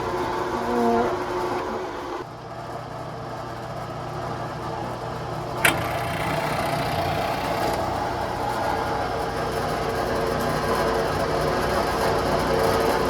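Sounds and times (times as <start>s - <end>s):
drill press motor running: 0.0s - 2.2s, 5.5s - 13.0s
sharp click: 5.6s - 7.8s.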